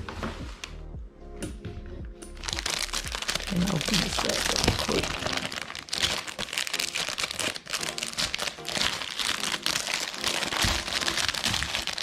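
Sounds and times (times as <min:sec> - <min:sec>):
packaging crinkling and rustling: 0:02.4 - 0:12.0.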